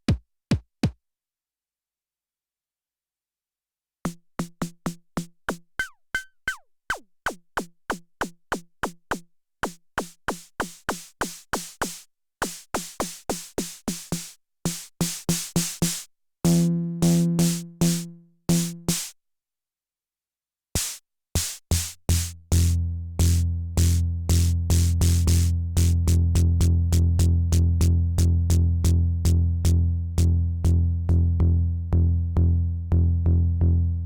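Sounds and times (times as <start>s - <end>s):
drum machine snare hits: 0.0s - 1.0s, 7.3s - 19.2s, 20.8s - 25.4s.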